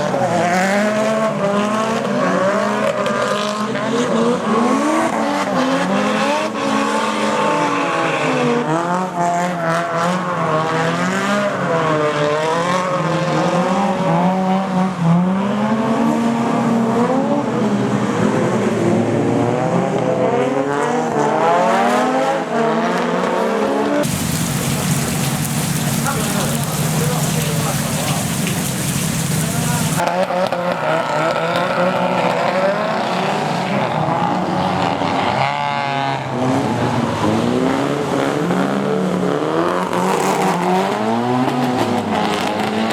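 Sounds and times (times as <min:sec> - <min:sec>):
car engines revving: 0:00.0 - 0:42.9
tyres squealing: 0:24.1 - 0:30.0
rain hiss: 0:24.1 - 0:30.2.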